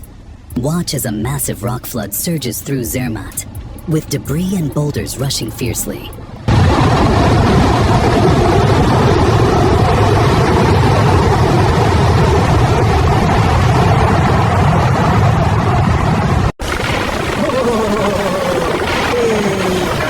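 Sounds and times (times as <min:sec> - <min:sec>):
water rushing down stream: 0:06.5 - 0:15.4, 0:16.6 - 0:20.0
deep rumble of rolling rock: 0:06.5 - 0:20.0.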